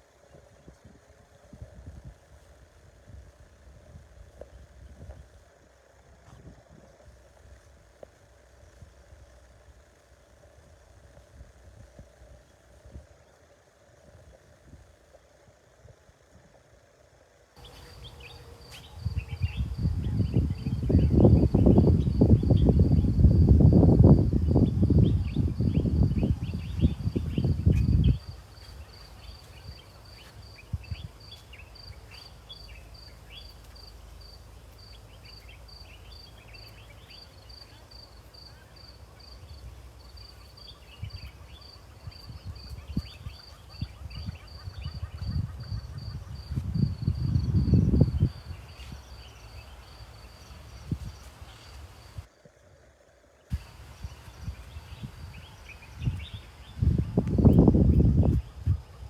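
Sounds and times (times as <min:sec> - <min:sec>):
insect chirping: 0:00.0 - 0:59.0
faint bird twittering: 0:17.6 - 0:23.2, 0:24.4 - 0:52.3.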